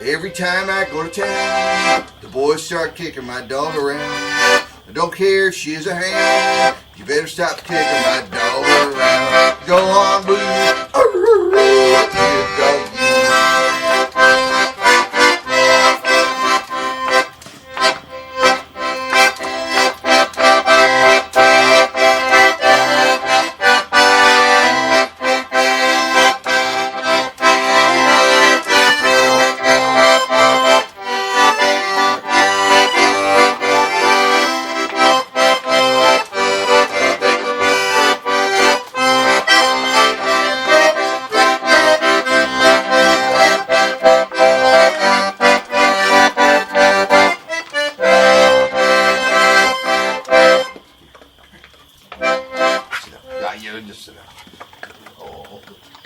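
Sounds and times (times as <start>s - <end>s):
instrumental folk melody: 0.0s - 56.0s
low bass notes: 8.2s - 14.8s.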